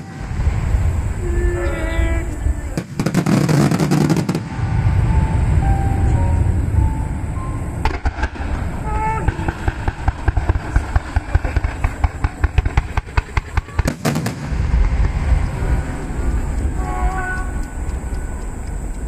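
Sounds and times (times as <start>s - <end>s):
fireworks bursts and crackling: 0.0s - 5.7s, 7.8s - 19.0s
rumble of fireworks booms: 0.0s - 19.0s.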